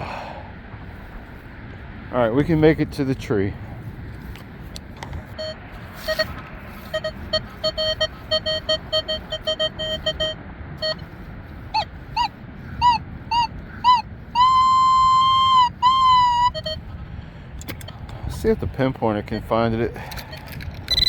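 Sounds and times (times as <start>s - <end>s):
wind rumble on microphone: 0.0s - 21.0s
metal detector rising chirps: 5.4s - 11.0s, 11.8s - 16.8s, 20.3s - 21.0s
metal detector short low beeps: 5.4s - 11.0s, 12.2s - 16.8s, 20.0s - 21.0s
metal detector long high tone: 5.4s - 11.1s, 11.8s - 16.8s, 20.2s - 21.0s.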